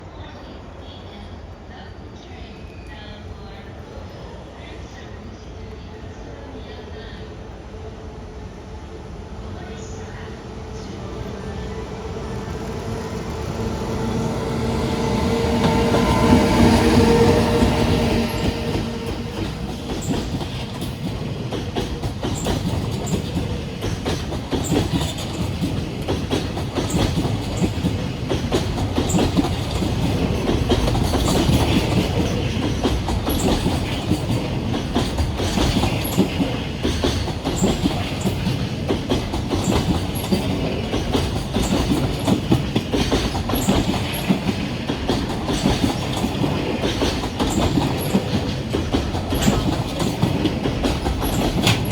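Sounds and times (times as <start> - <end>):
freight train rumbling past: 0.0 - 51.9
wheels clattering over rail joints: 18.4 - 51.9.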